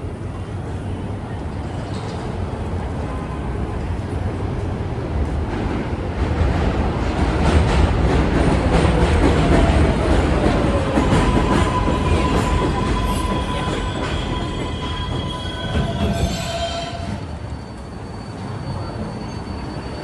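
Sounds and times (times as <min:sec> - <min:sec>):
train wheels rumbling on rails: 0:00.0 - 0:20.0
train wheels squealing: 0:08.5 - 0:20.0.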